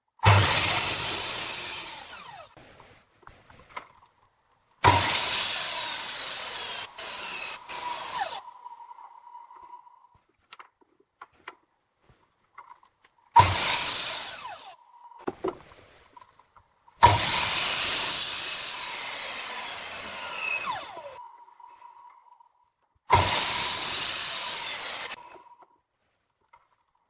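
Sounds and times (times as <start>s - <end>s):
power tool working wood: 0.2s - 3.8s, 4.8s - 9.0s, 13.4s - 15.9s, 17.0s - 21.6s, 23.1s - 25.4s.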